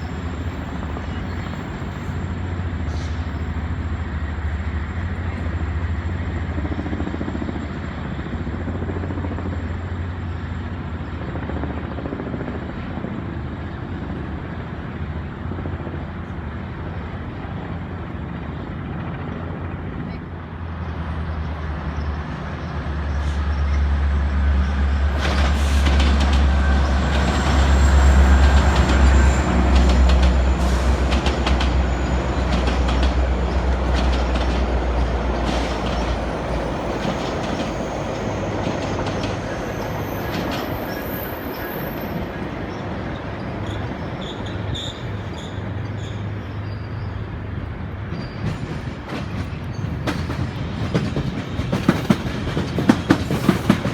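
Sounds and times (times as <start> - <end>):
train engine drone: 0.0 - 53.9
train wheels clicking on rail joints: 23.2 - 42.2, 47.5 - 53.9.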